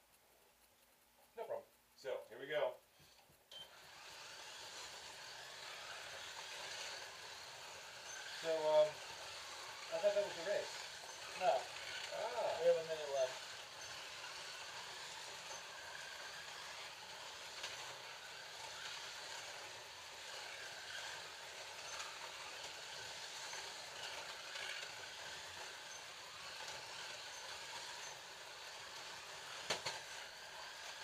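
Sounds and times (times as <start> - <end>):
small ticks: 0.0 - 3.9, 20.2 - 31.0
slot cars whirring: 3.1 - 31.0.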